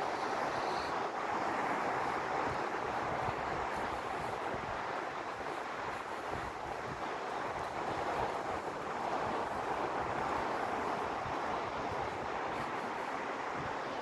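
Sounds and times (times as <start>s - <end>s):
wind buffeting microphone: 0.0s - 14.0s
sea surf: 0.9s - 14.0s.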